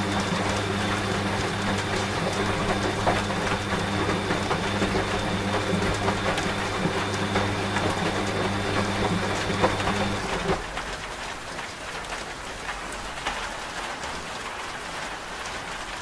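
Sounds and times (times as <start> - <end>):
washing machine motor hum: 0.0 - 10.8.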